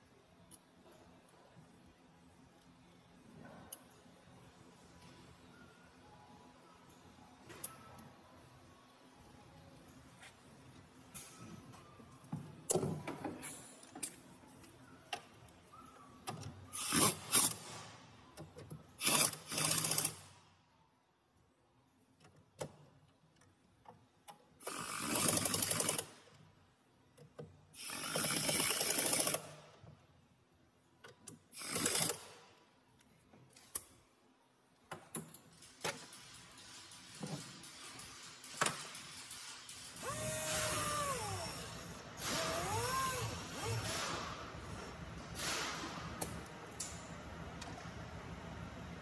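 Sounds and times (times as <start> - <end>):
ratchet wrench ratcheting: 16.8 - 17.6, 19.0 - 20.2, 24.6 - 26.1, 27.8 - 29.4, 31.6 - 32.2, 35.6 - 44.1.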